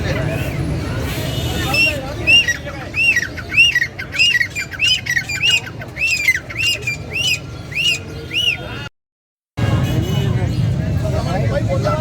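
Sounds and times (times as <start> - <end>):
parrot squawking: 1.6 - 8.6.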